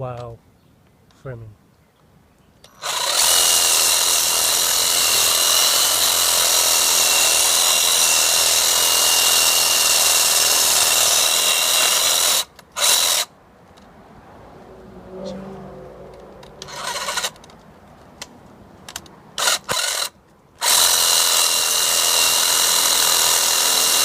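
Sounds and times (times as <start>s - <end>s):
reciprocating saw cutting branch: 16.5s - 17.4s.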